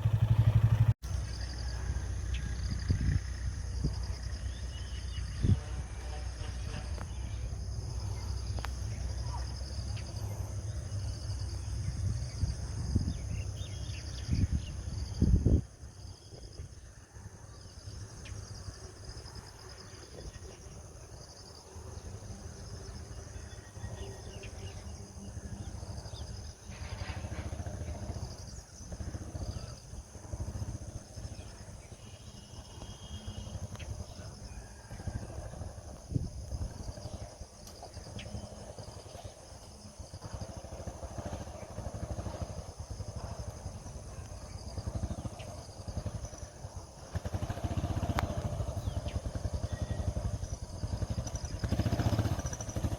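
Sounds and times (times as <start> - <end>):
insects: 0.0 - 52.9
motorcycle engine running: 0.0 - 52.9
birds: 19.4 - 52.9.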